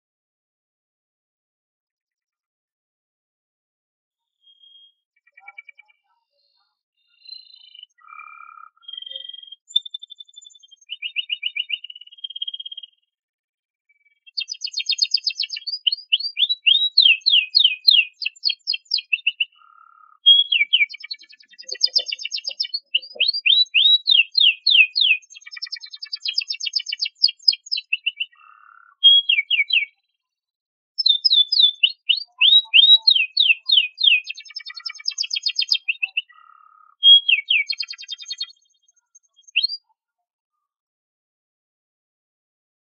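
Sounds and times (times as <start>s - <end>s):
canary singing trills: 4.4s - 13.0s, 13.9s - 30.1s, 31.0s - 39.9s.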